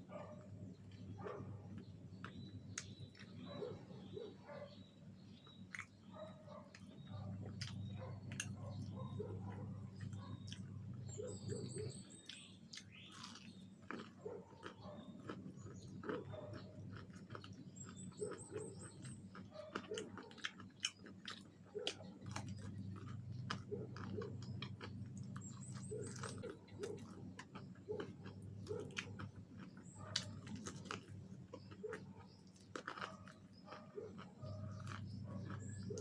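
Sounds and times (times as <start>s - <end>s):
chewing fried chicken: 0.0s - 36.0s.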